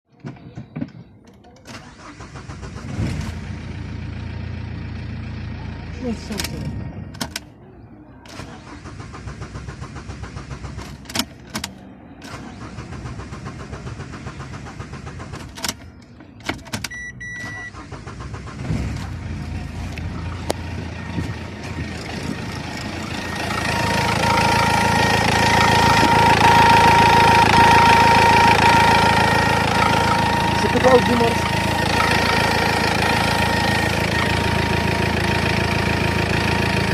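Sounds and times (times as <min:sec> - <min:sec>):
diesel engine starting: 0:01.4 - 0:36.9
short beep: 0:16.9 - 0:17.8, 0:23.0 - 0:35.2.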